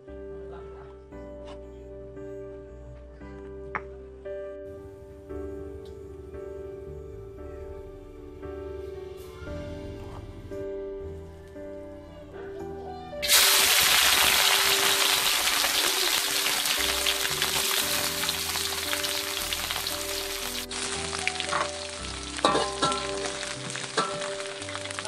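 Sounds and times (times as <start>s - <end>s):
fish sizzling in hot oil: 13.2s - 25.0s
metal spatula scraping wok: 22.4s - 25.0s.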